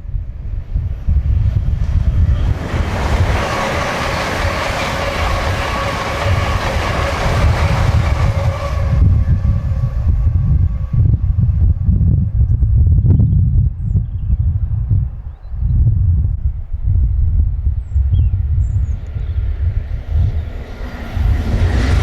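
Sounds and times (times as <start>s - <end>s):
wind buffeting microphone: 0.0s - 22.0s
train wheels clattering over rails: 1.8s - 9.8s.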